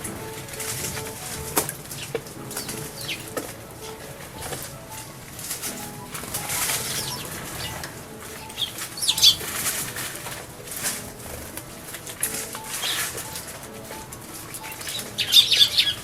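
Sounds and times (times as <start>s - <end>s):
birds splashing water: 0.0s - 16.0s
fluttering wings: 0.0s - 16.0s
sharp bird chirps: 6.4s - 9.5s.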